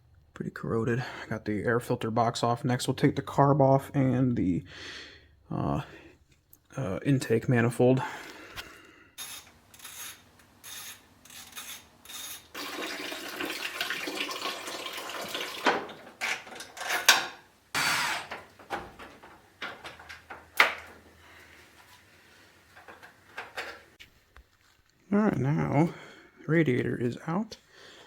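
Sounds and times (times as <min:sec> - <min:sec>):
coolant pouring out: 0:12.5 - 0:16.2
tools clanking and scraping: 0:15.6 - 0:24.0.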